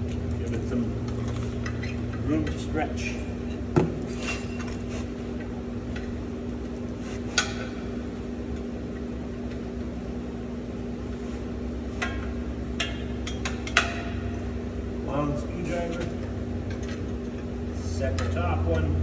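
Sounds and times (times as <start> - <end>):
steady hum: 0.0 - 19.0
hand tools clinking on metal: 4.0 - 5.0.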